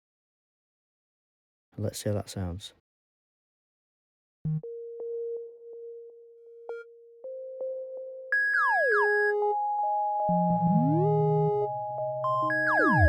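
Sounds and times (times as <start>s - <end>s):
synthesizer notes with pitch slides: 7.4s - 13.0s.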